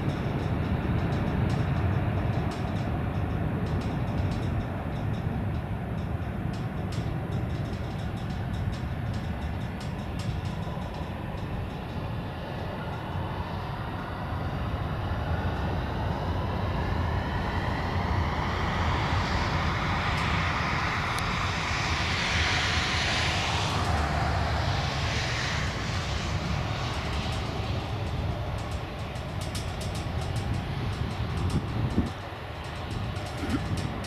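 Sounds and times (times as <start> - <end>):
jet flying past: 12.0 - 34.0.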